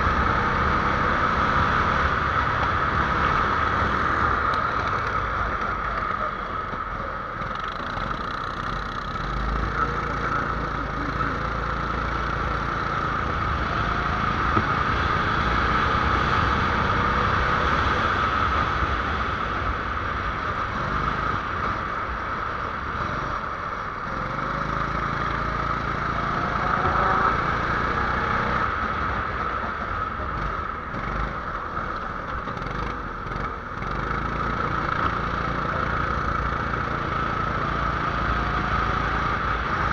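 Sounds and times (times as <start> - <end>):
small engine running: 2.9 - 14.7.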